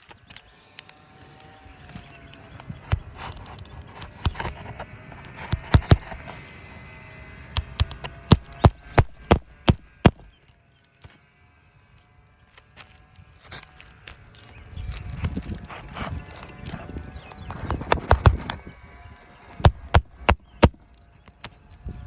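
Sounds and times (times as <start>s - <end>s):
hand tools knocking on shingles: 5.4s - 6.2s, 7.6s - 10.3s, 17.5s - 18.6s, 19.6s - 20.8s.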